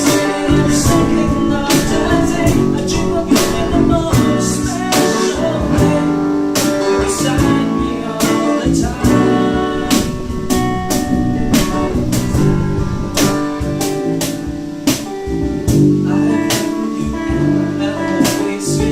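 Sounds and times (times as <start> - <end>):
band playing guitar-led music: 0.0 - 18.9.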